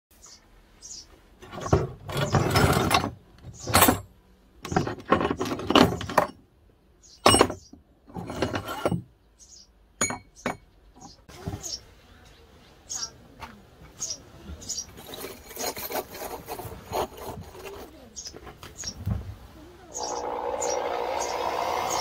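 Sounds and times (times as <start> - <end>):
scrap metal clattering and scraping: 1.4 - 6.4, 7.2 - 9.1, 14.9 - 18.1
metal ringing clinks: 10.0 - 10.7.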